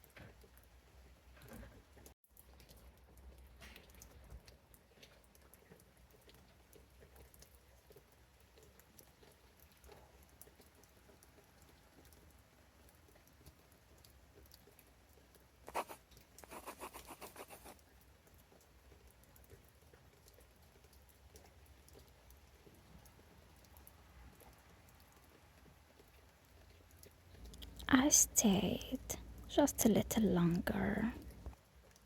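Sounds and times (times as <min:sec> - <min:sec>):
raindrops dripping: 0:00.0 - 0:32.0.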